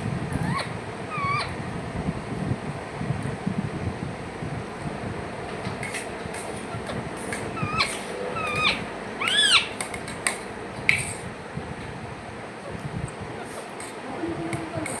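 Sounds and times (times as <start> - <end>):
parrot squawk: 0.3 - 1.6, 6.6 - 9.8
parrots chirping and whistling: 0.3 - 1.6, 5.8 - 10.2.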